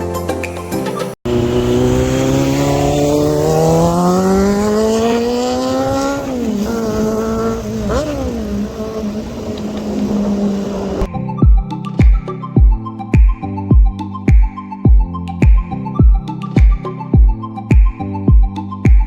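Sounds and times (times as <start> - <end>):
motorcycle engine revving: 1.3 - 11.1.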